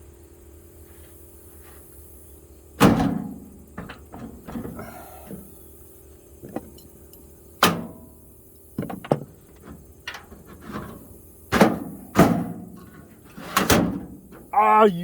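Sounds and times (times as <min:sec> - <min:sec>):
metal drawer clanking on slides: 0:02.8 - 0:04.9, 0:10.1 - 0:14.4.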